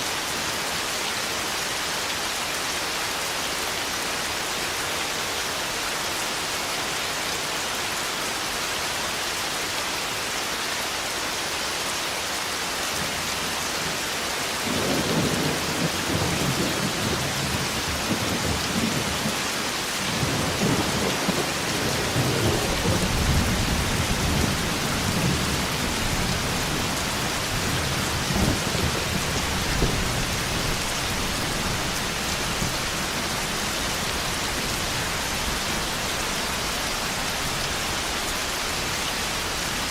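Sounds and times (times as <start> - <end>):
heavy rain: 0.0 - 39.9
rolling thunder: 20.0 - 32.8.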